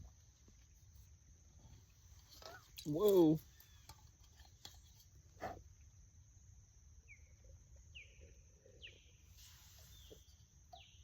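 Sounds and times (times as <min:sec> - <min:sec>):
falling bird chirps: 0:07.0 - 0:11.0.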